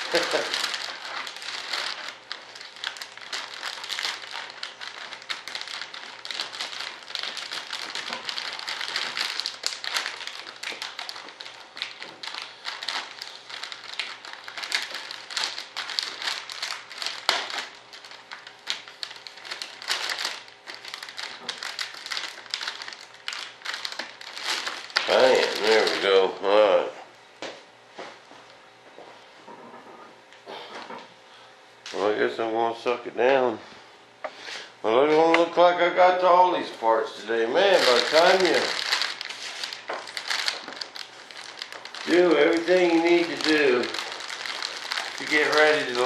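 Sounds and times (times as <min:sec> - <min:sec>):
plastic film crinkling: 0:00.0 - 0:26.4, 0:37.2 - 0:46.0.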